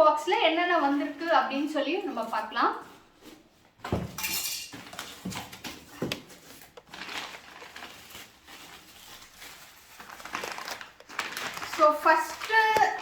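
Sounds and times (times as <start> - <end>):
packaging rustling: 4.7 - 13.0.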